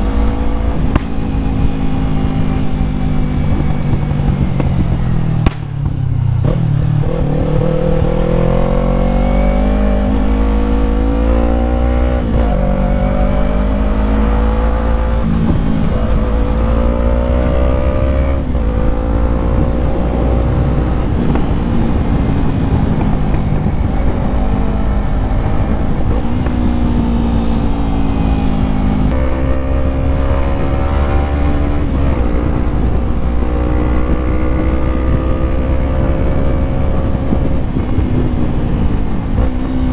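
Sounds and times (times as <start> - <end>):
motorcycle engine accelerating: 0.0 - 39.9
wind rumble on microphone: 0.0 - 39.9.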